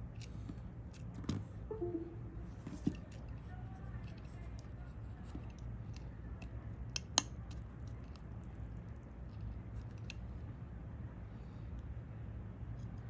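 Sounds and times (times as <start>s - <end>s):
small tools clicking on phone parts: 5.3s - 8.4s.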